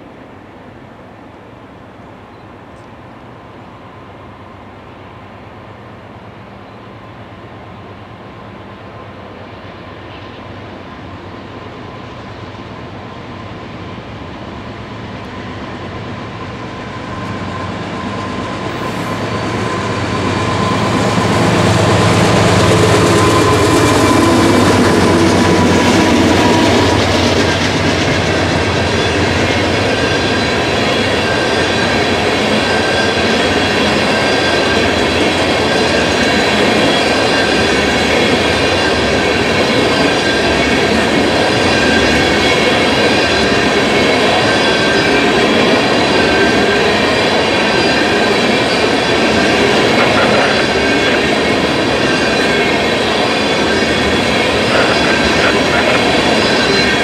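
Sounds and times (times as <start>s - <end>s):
diesel locomotive passing: 0.0s - 57.0s
train wheels rumbling on rails: 2.3s - 57.0s
high wheel squeal: 16.5s - 57.0s.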